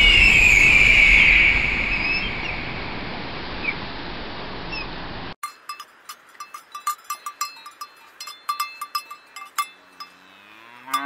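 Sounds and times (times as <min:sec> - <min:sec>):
cowbell clanking: 0:05.4 - 0:11.0
cow mooing: 0:09.9 - 0:11.0.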